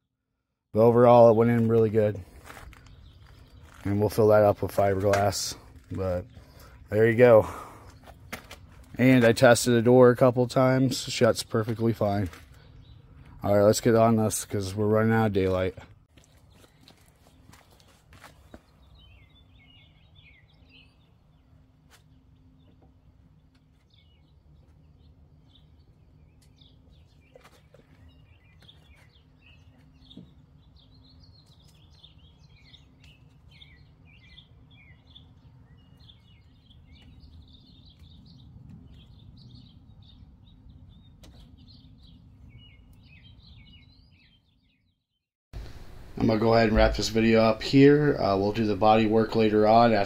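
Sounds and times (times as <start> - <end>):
birds chirping faintly: 0.8 - 50.0
low steady hum: 45.6 - 50.0.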